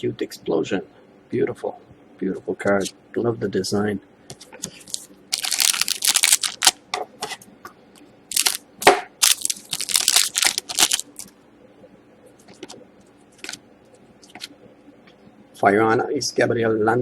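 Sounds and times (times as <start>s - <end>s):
wrapper crinkling: 4.7s - 6.8s, 8.3s - 8.6s, 9.2s - 11.3s.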